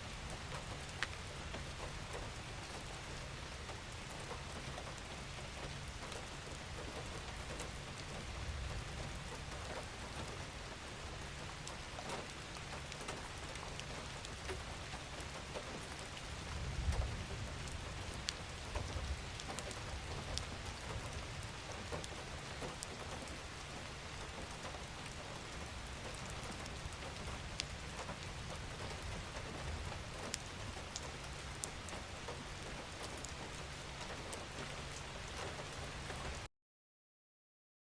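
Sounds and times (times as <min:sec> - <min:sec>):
gentle rain falling: 0:00.0 - 0:36.5.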